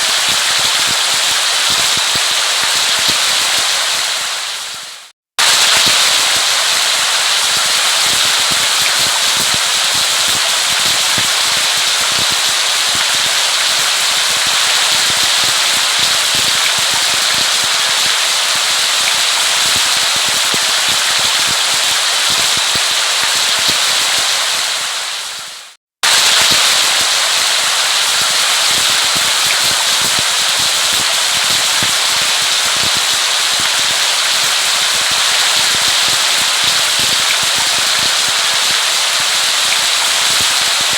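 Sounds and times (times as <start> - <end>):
heavy rain patter: 0.0 - 40.9.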